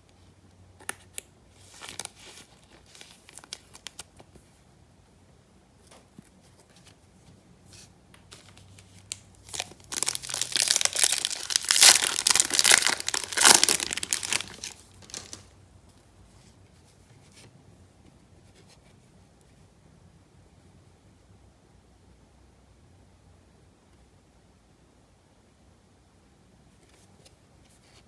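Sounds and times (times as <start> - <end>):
foil wrapper tearing and crinkling: 9.4 - 15.5.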